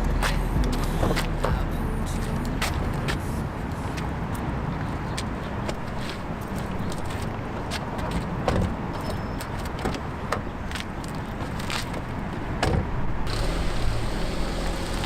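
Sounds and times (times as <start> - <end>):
music: 0.0 - 3.0
car noise: 0.0 - 15.0.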